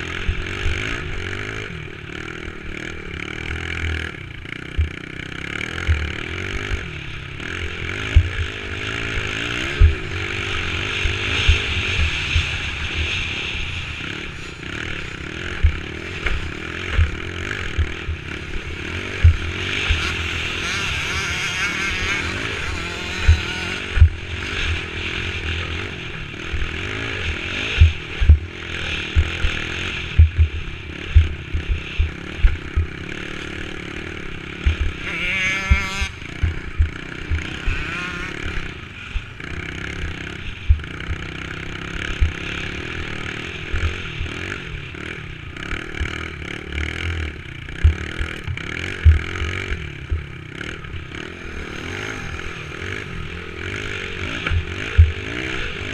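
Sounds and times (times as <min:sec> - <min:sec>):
clatter: 0:00.0 - 0:55.9
dirt bike engine: 0:00.0 - 0:55.9
low thumps: 0:15.5 - 0:18.3, 0:19.2 - 0:20.0, 0:27.8 - 0:28.5, 0:30.1 - 0:33.0, 0:47.8 - 0:49.2.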